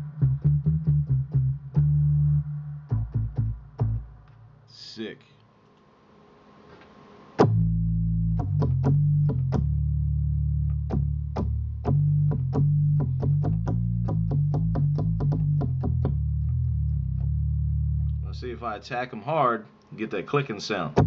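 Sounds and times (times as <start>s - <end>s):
deep synth bass notes: 0.0s - 4.7s, 7.4s - 18.6s.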